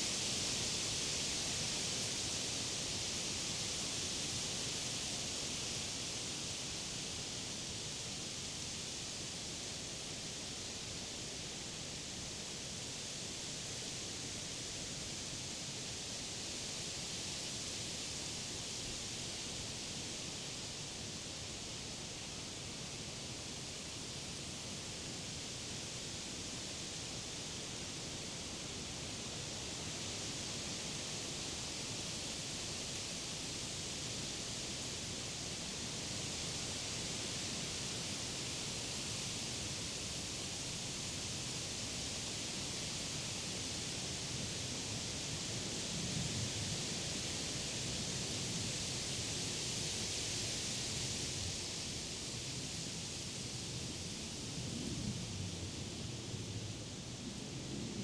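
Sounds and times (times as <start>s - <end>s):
wind rustling tree leaves: 29.4s - 58.0s.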